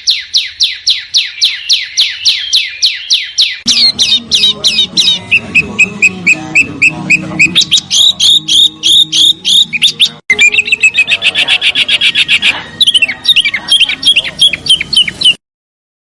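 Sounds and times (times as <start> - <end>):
songbird whistled notes: 0.0 - 15.4.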